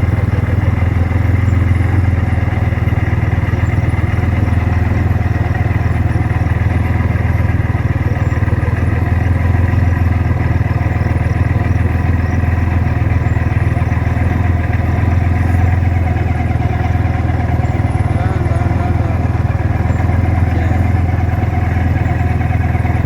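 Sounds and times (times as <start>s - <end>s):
car engine rumbling: 0.0s - 23.0s.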